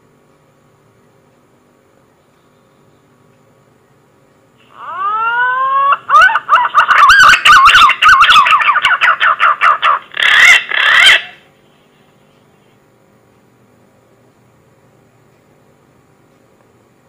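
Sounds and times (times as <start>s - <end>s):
pigeon call whistles: 4.8s - 11.4s.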